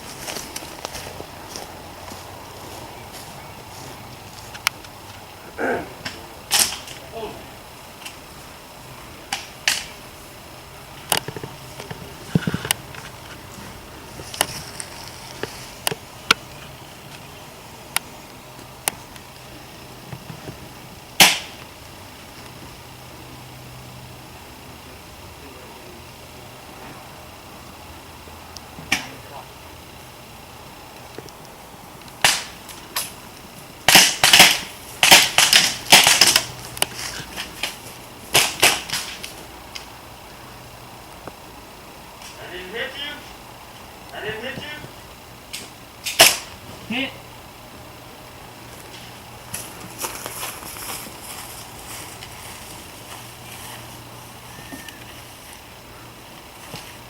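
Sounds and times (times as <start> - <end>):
loud crack: 5.6 - 7.1, 9.3 - 10.0, 21.2 - 21.7, 32.1 - 33.2, 33.8 - 39.9, 45.5 - 46.6
airsoft gun shots: 21.2 - 21.6, 32.2 - 32.6, 33.9 - 36.5, 46.0 - 46.5.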